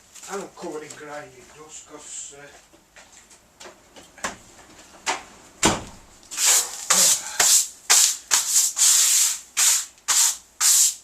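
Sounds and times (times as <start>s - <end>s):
thump: 5.6s - 6.0s
brushing off clothing: 6.4s - 11.0s.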